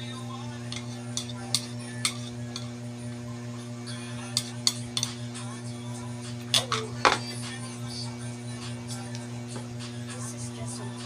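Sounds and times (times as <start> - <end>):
steady low hum: 0.0 - 11.0
utensils clinking against bowl: 0.5 - 2.8, 4.2 - 5.3, 6.4 - 7.4.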